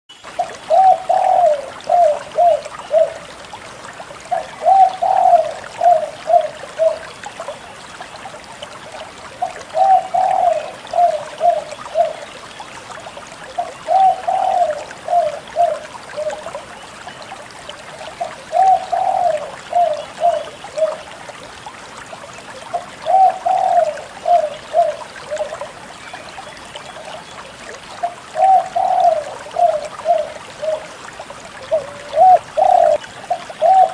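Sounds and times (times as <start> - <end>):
dove cooing: 0.7 - 3.2, 4.3 - 7.1, 9.4 - 12.2, 13.6 - 16.5, 18.5 - 21.0, 23.0 - 25.6, 28.4 - 30.9, 31.6 - 33.9.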